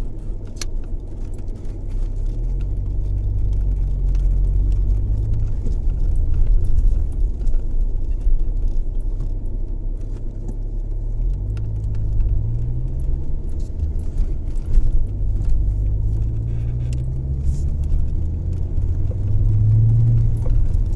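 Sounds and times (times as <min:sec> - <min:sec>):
car engine running: 0:00.0 - 0:20.9
light ticks: 0:00.2 - 0:20.9.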